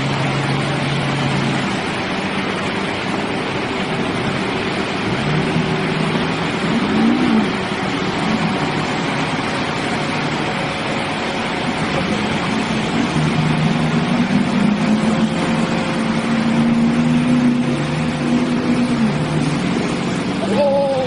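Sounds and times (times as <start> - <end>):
loud wash of noise: 0.0 - 21.0
vehicle engine running steadily: 0.0 - 21.0.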